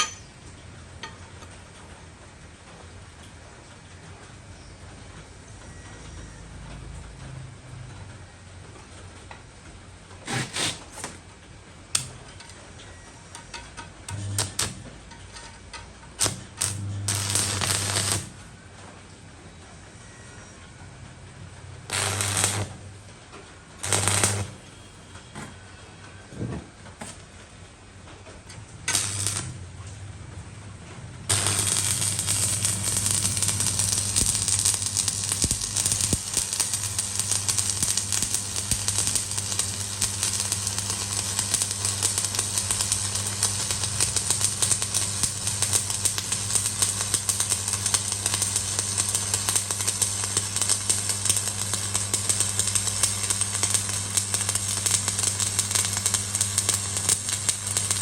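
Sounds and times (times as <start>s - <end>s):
welding arc crackling and hissing: 10.2s - 11.1s, 13.4s - 18.4s, 21.9s - 22.9s, 23.8s - 24.6s, 28.9s - 29.7s, 31.3s - 58.0s.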